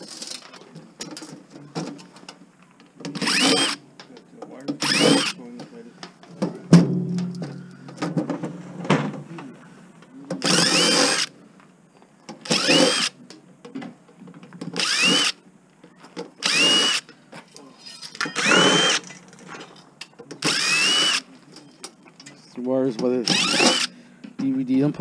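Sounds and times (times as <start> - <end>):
cordless drill whining: 3.2 - 3.8, 4.8 - 5.4, 10.4 - 11.3, 12.4 - 13.2, 14.8 - 15.4, 16.4 - 17.1, 18.3 - 19.0, 20.4 - 21.3, 23.2 - 23.9.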